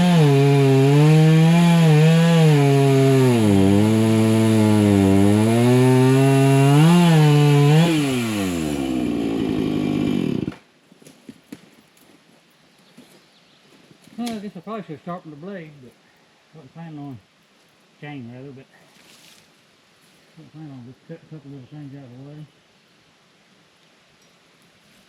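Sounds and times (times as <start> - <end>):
chainsaw cutting brush: 0.0 - 10.6.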